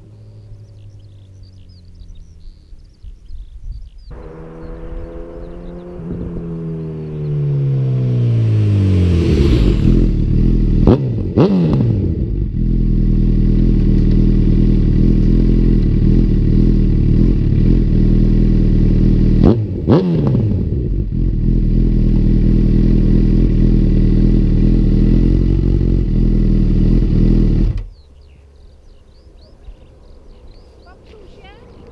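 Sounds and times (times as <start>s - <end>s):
motorcycle engine idling: 12.1s - 19.4s.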